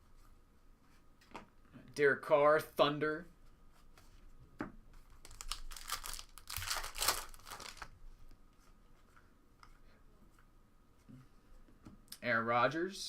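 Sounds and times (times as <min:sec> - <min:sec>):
wrapper tearing and crinkling: 0:05.2 - 0:08.0.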